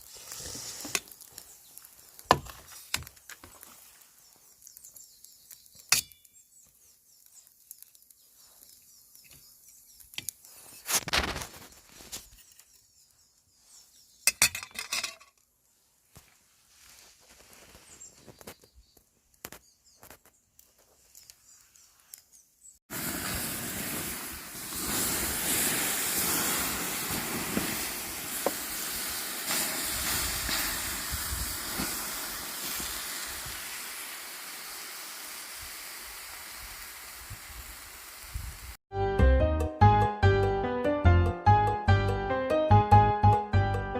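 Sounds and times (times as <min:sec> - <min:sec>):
meat sizzling on a grill: 0:00.0 - 0:05.9, 0:22.9 - 0:38.8.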